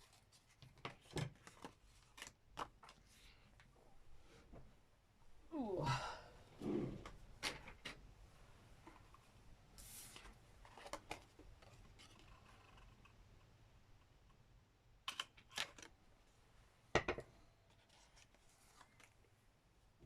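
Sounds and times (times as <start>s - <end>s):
card and paper rustling: 0.0s - 3.4s, 9.8s - 13.0s, 17.7s - 19.2s
person sighing: 5.5s - 7.1s.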